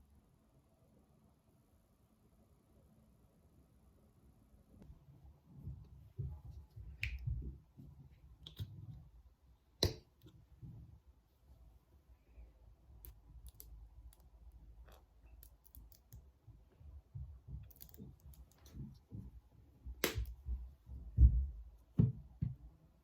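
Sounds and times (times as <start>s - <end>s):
small objects clicking and tapping: 13.0s - 16.3s, 17.5s - 18.8s.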